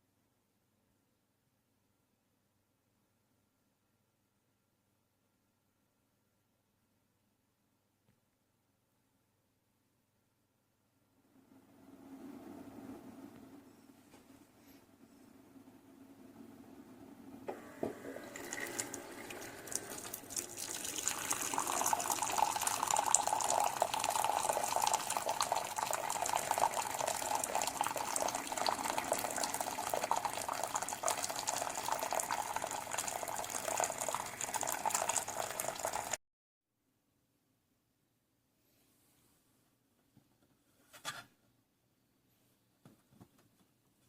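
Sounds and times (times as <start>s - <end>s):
coffee maker brewing: 17.5s - 36.2s
liquid streaming into a cup: 17.5s - 36.2s.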